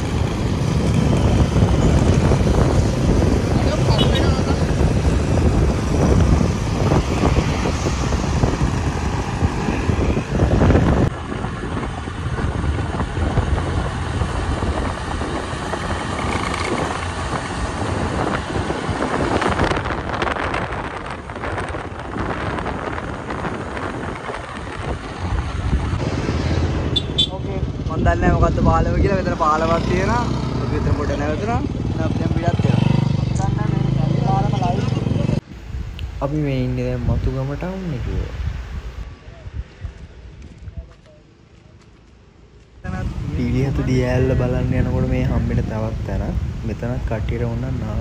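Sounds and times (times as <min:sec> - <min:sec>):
motorcycle running: 0:00.0 - 0:35.4, 0:42.4 - 0:48.0
wind buffeting microphone: 0:00.0 - 0:41.0, 0:42.8 - 0:48.0.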